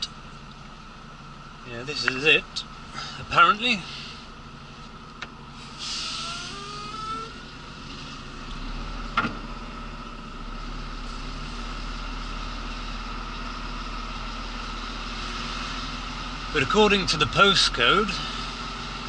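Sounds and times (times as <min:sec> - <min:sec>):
diesel lorry engine idling: 0:00.0 - 0:19.0
whine and hiss: 0:05.5 - 0:08.2.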